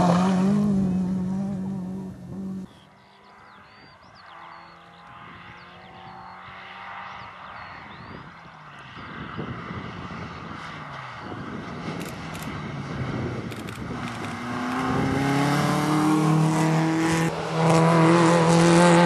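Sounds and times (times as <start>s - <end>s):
distant car accelerating: 0.0s - 7.8s, 8.7s - 19.0s
loud car engine: 0.0s - 19.0s.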